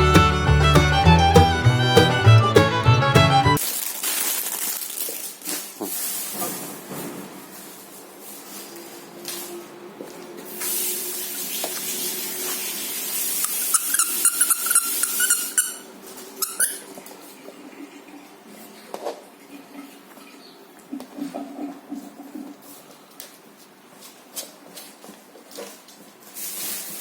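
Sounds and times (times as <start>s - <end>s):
packaging rustling: 3.6s - 6.7s
dog toy squeaking: 13.5s - 16.8s.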